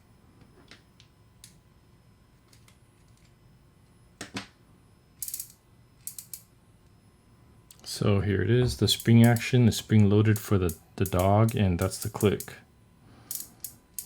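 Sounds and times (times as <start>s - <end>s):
fishing reel ratcheting clicks: 5.2s - 6.4s, 13.3s - 14.0s.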